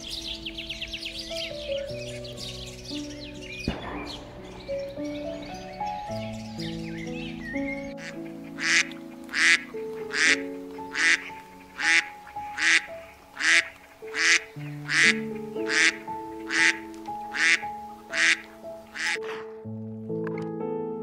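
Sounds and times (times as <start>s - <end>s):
soft piano music: 0.0s - 21.0s
duck quacking: 8.0s - 19.4s.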